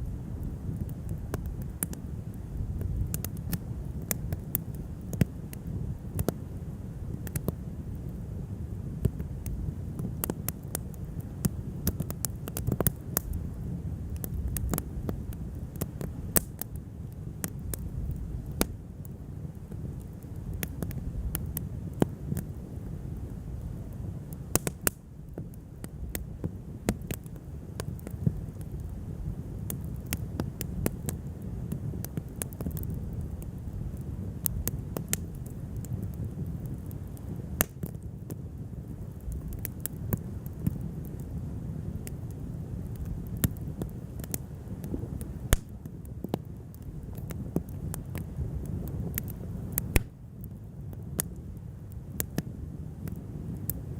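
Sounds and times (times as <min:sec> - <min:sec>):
campfire crackling and popping: 0:00.0 - 0:53.9
low steady fire rumble: 0:00.0 - 0:53.9.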